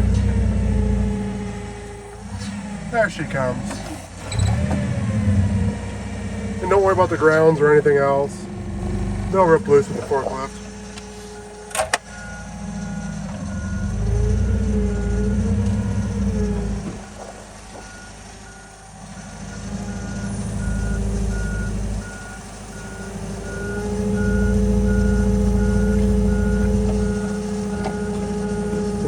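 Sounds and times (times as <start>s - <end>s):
forklift engine revving: 0.0s - 29.0s
reverse alarm beeping: 9.4s - 16.6s, 17.8s - 29.0s.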